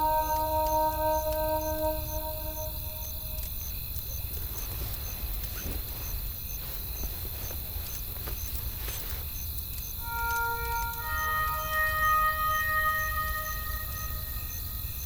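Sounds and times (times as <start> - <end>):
faint high chirp: 0.0 - 3.5, 10.0 - 15.0.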